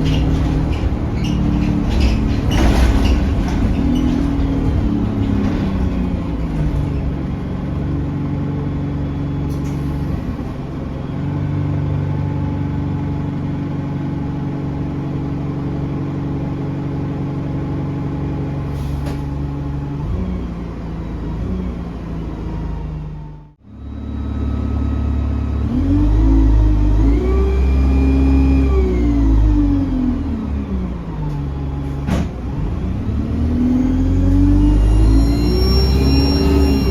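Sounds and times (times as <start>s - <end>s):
bus engine running: 0.0s - 36.9s.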